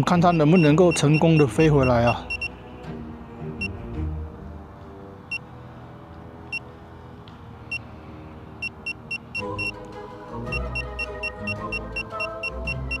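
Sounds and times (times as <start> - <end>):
electronic warning beeps: 0.1 - 2.5, 8.6 - 9.8, 10.5 - 13.0.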